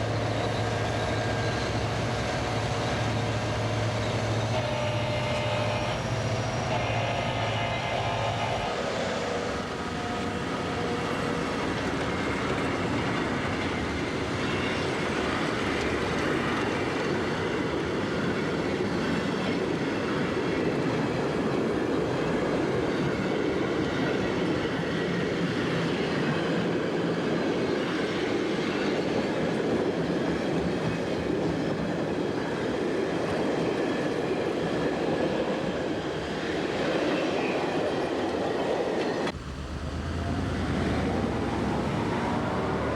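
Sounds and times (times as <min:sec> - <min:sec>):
train wheels clattering on track: 0:08.2 - 0:39.4.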